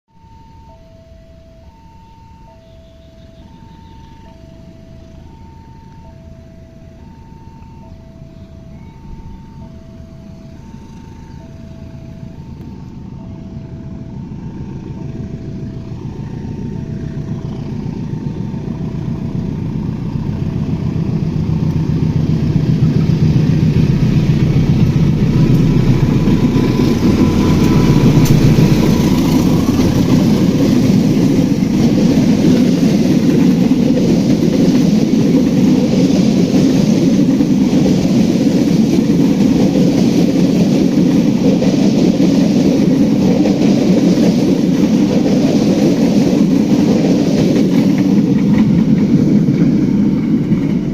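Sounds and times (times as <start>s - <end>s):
two-note warning chime: 0.1s - 17.0s
diesel locomotive train passing: 0.1s - 50.9s
wheels rumbling on rail: 0.1s - 50.9s.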